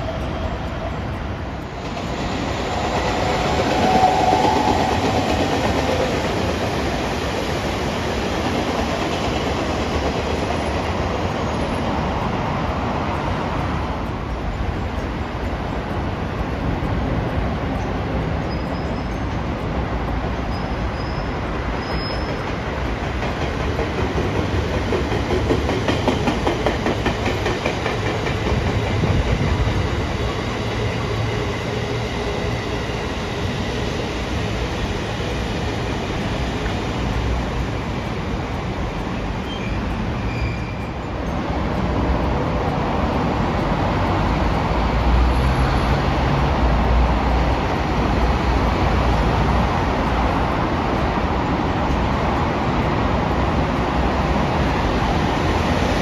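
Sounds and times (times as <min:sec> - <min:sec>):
train rumbling on tracks: 0:00.0 - 0:56.0.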